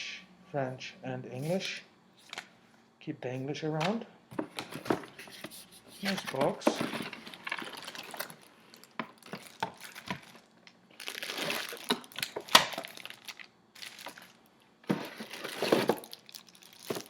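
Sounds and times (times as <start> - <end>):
cardboard packaging rustling: 4.4 - 17.0.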